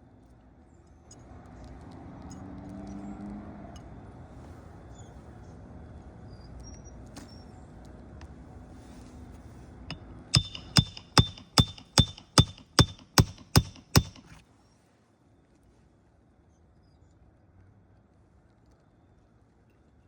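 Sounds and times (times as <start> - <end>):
hammer strikes with short ring: 10.4 - 14.4.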